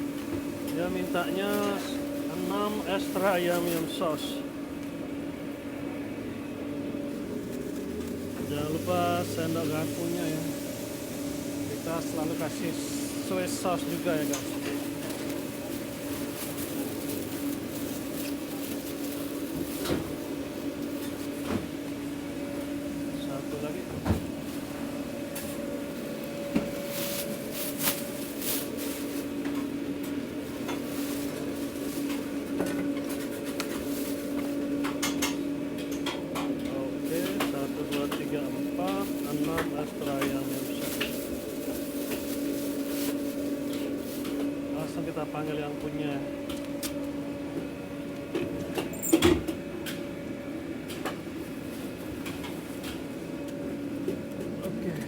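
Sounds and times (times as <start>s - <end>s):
steady mechanical hum: 0.0s - 55.0s
containers clicking and rustling: 26.4s - 44.7s.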